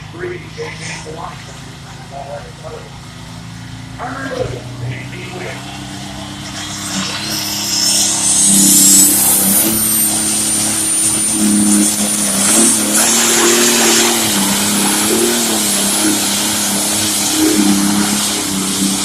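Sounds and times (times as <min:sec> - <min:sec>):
diesel engine running under load: 0:00.0 - 0:19.0
high turbo whistle: 0:04.6 - 0:19.0.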